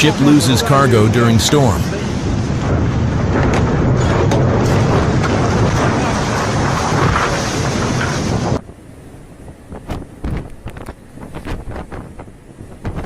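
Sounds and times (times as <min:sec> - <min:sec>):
sea noise: 0:00.0 - 0:13.0
storm wind on microphone: 0:00.0 - 0:13.0.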